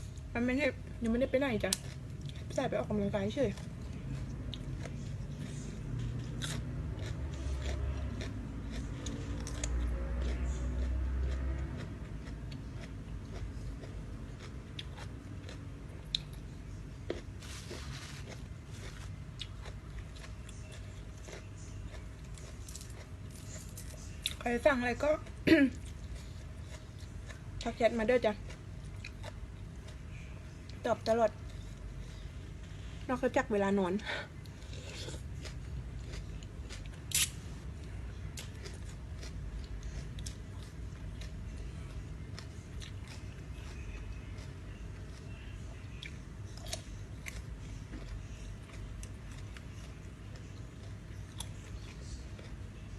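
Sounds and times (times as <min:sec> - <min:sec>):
person chewing food: 0:01.7 - 0:02.6, 0:03.5 - 0:24.4, 0:25.2 - 0:33.1, 0:34.3 - 0:52.9
food crunch: 0:03.4 - 0:24.4, 0:34.4 - 0:52.9.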